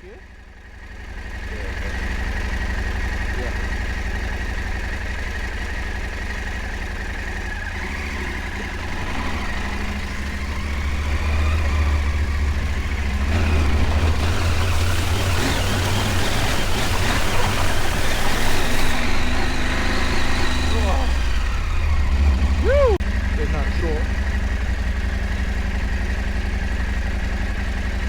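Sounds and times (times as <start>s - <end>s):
motorcycle engine at low revs: 0.0s - 28.0s
water splashing: 9.5s - 22.7s.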